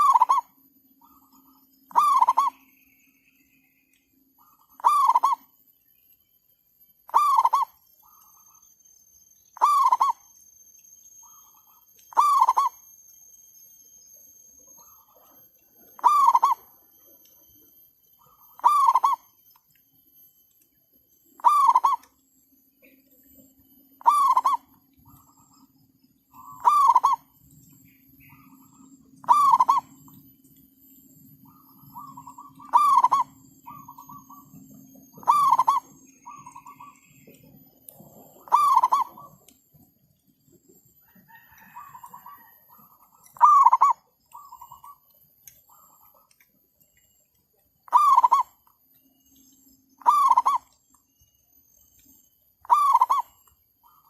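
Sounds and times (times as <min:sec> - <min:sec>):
bird call: 0:00.0 - 0:06.0, 0:07.0 - 0:19.9, 0:20.5 - 0:39.6, 0:41.0 - 0:54.0
low steady hum: 0:00.0 - 0:54.0
faint answering bird calls: 0:31.4 - 0:39.4.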